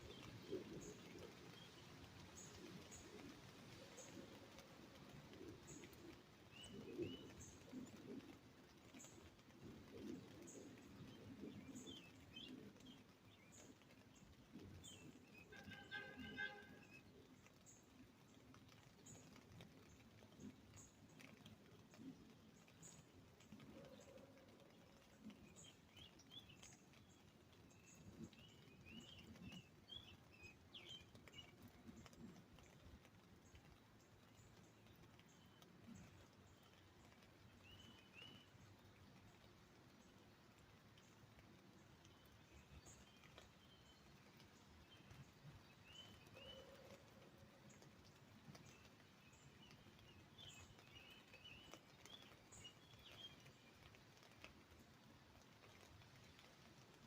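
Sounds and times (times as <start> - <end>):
bird chirps and twittering: 0.0 - 18.0, 18.6 - 32.8, 42.0 - 54.4
raindrops tapping on umbrella: 0.0 - 57.0.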